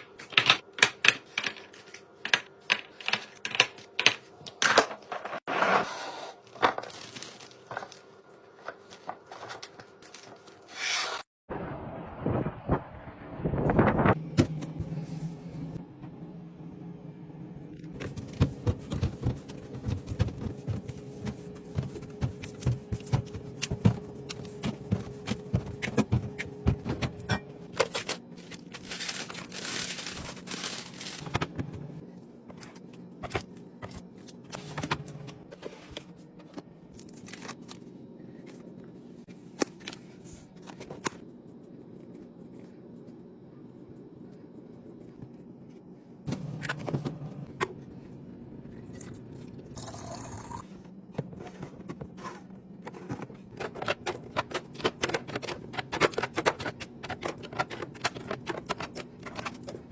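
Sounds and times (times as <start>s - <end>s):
packaging rustling: 6.5s - 10.7s, 27.8s - 31.6s
low hum: 11.5s - 39.4s.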